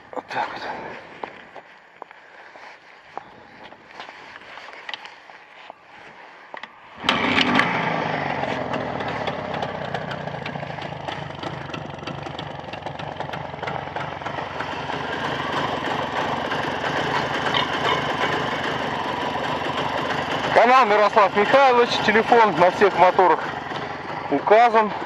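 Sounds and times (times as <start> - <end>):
motorcycle engine starting and running: 6.5 - 25.0.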